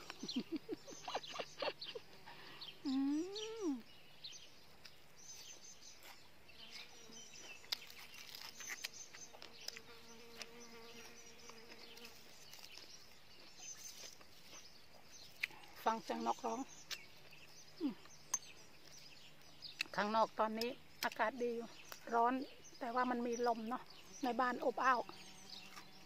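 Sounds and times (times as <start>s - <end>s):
songbirds chirping: 0.0s - 26.0s
person humming: 2.8s - 3.9s, 17.8s - 18.1s.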